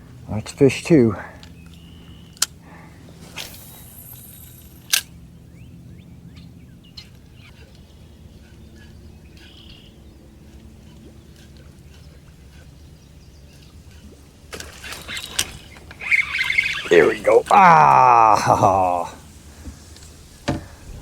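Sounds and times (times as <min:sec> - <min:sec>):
low steady hum: 0:00.0 - 0:21.0
faint bird chirps: 0:01.5 - 0:02.4, 0:05.4 - 0:11.4, 0:15.0 - 0:17.2.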